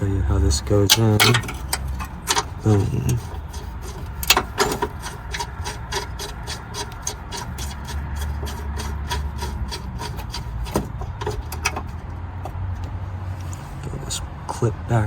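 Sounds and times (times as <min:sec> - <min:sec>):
steady low hum: 0:00.0 - 0:11.9
rubbing scrapes: 0:00.9 - 0:12.0.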